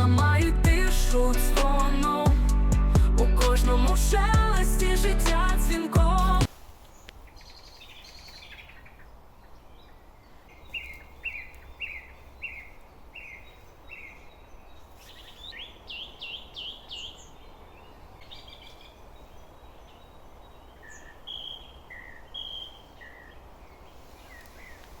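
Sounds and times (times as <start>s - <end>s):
songbird whistling: 20.8s - 23.3s.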